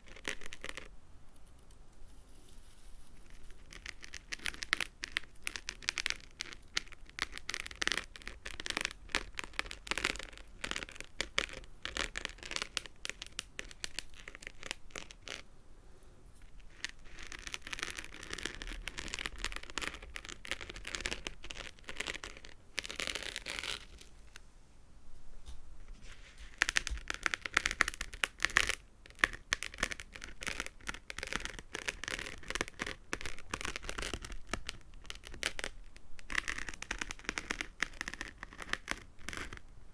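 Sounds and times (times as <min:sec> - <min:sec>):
soft rubbing: 0:00.0 - 0:08.2, 0:16.2 - 0:27.5
fingernails tapping and scratching: 0:26.5 - 0:39.6.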